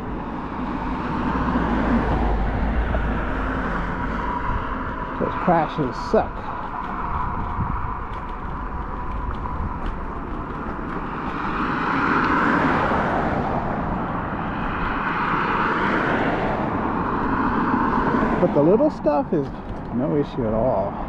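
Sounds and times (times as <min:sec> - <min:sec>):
small tyres rumbling on concrete: 0:00.0 - 0:21.0
wind rushing over microphone: 0:00.0 - 0:21.0.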